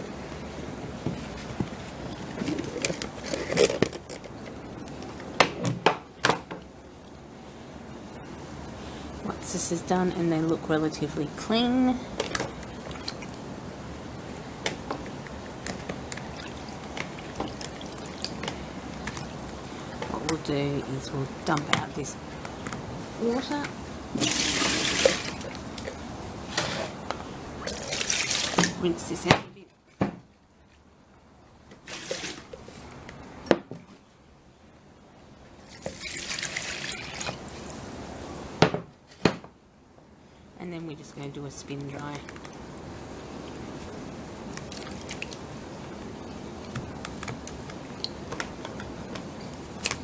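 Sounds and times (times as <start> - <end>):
water sloshing in salad spinner: 8.5 - 13.6, 14.4 - 22.2, 22.9 - 29.2, 31.8 - 33.0, 35.6 - 37.8.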